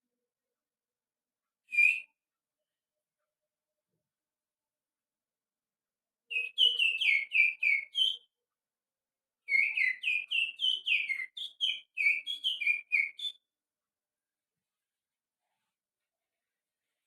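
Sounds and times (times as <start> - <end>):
finger whistling birdsong: 1.7 - 2.2, 6.3 - 8.3, 9.5 - 13.5.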